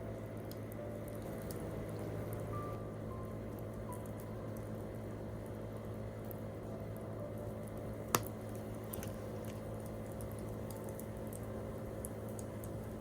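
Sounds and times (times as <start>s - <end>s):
low background hum: 0.0s - 13.0s
campfire crackling: 7.7s - 13.0s.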